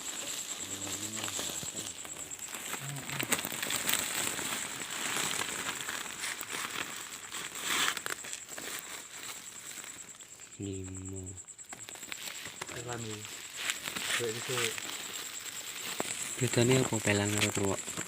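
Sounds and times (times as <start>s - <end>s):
close rustling and crackling: 0.0s - 18.0s
high-pitched insect trill: 0.0s - 18.0s.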